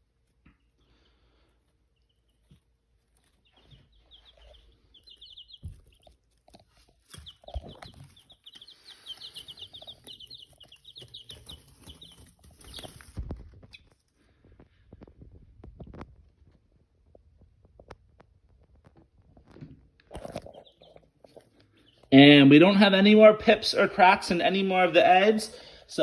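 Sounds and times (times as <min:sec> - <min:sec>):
chicks and ducklings peeping: 0:00.5 - 0:16.0, 0:18.9 - 0:26.0
soft thumps of birds moving: 0:02.3 - 0:16.6.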